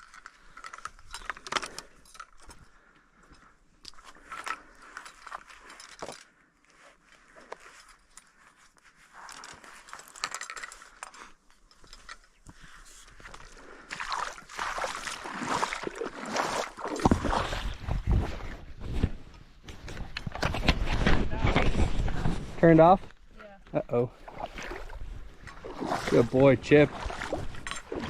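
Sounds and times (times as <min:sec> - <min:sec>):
gear clicking and rustling: 0:00.0 - 0:13.6.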